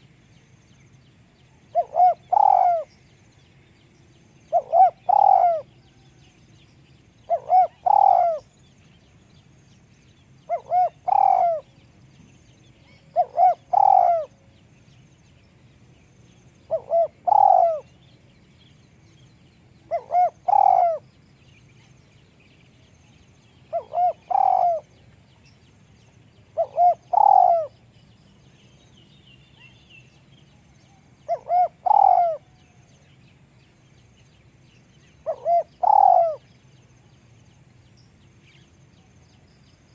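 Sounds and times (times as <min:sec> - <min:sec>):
dove cooing: 0:01.7 - 0:02.9, 0:04.5 - 0:05.7, 0:07.3 - 0:08.5, 0:10.5 - 0:11.8, 0:12.9 - 0:14.4, 0:16.7 - 0:17.9, 0:19.9 - 0:21.0, 0:23.7 - 0:24.9, 0:26.5 - 0:27.8, 0:31.2 - 0:32.6, 0:35.2 - 0:36.5.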